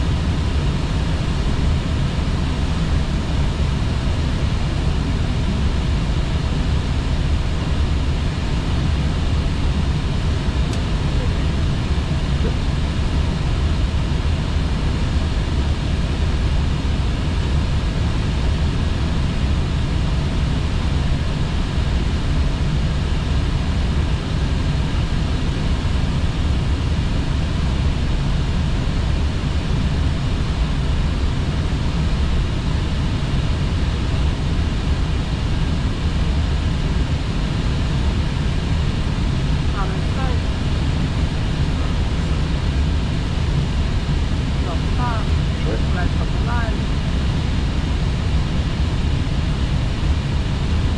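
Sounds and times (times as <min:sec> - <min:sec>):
airplane cockpit airflow and engine: 0:00.0 - 0:50.9.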